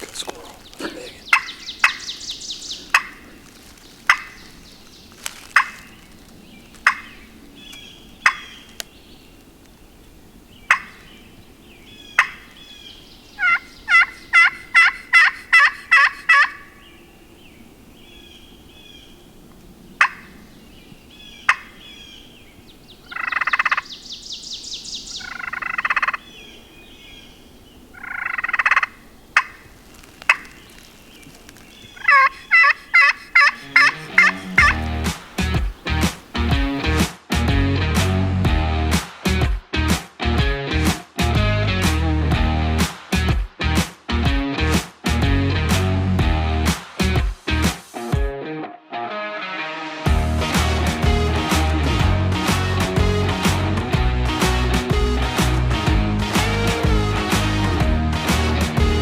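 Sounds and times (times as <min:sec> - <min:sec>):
songbird chirps: 0:00.0 - 0:37.0
turkey call clucks and yelps: 0:00.7 - 0:03.4, 0:04.0 - 0:04.5, 0:05.3 - 0:06.0, 0:06.8 - 0:08.8, 0:10.7 - 0:11.0, 0:12.1 - 0:12.5, 0:13.4 - 0:16.8, 0:20.0 - 0:20.3, 0:21.5 - 0:21.8, 0:23.1 - 0:24.0, 0:25.2 - 0:26.3, 0:28.0 - 0:36.9.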